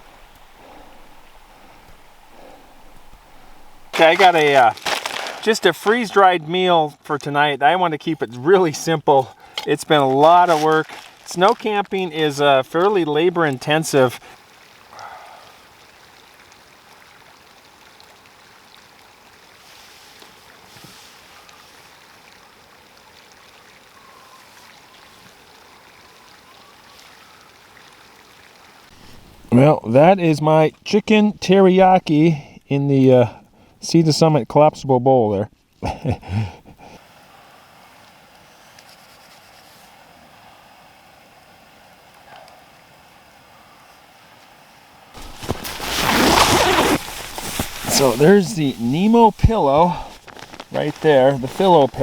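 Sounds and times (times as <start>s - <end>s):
soft rustle: 0.0s - 6.1s, 9.5s - 11.7s, 19.6s - 22.0s, 38.5s - 40.0s, 45.2s - 52.0s
creek rushing: 0.0s - 6.7s, 8.2s - 15.5s, 45.2s - 52.0s
faint steady hiss: 0.0s - 52.0s.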